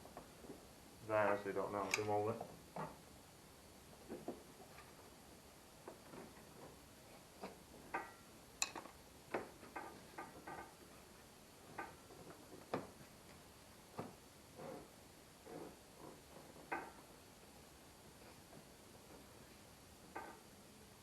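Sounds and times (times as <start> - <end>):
metal tools clicking and tapping: 7.9 - 8.9.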